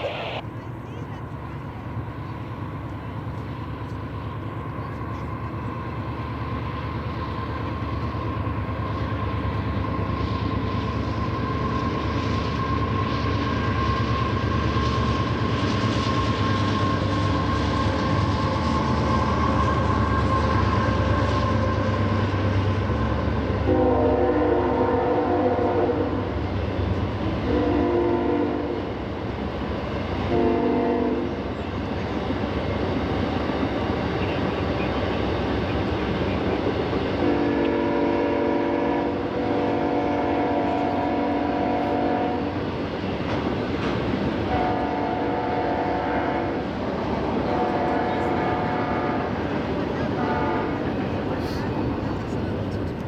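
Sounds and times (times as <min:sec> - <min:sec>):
steady whine: 0:00.0 - 0:00.5
diesel locomotives rumbling: 0:00.0 - 0:53.0
locomotive horn blasts: 0:23.6 - 0:26.3, 0:27.4 - 0:28.8, 0:30.3 - 0:31.4, 0:37.2 - 0:42.5, 0:44.5 - 0:46.7, 0:47.4 - 0:49.4, 0:50.2 - 0:50.8.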